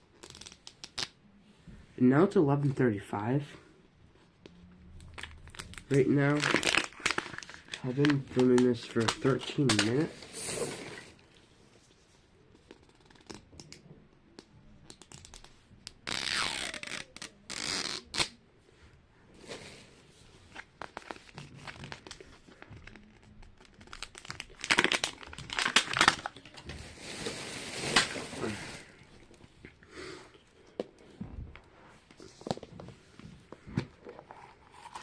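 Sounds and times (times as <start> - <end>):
plastic wrapping crinkling and tearing: 5.0 - 10.2, 20.5 - 29.4.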